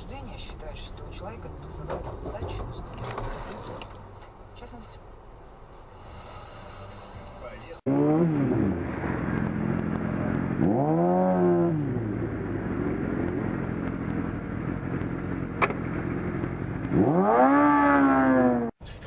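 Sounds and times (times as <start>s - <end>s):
road rumble: 0.0s - 18.8s
car engine revving: 7.8s - 18.8s.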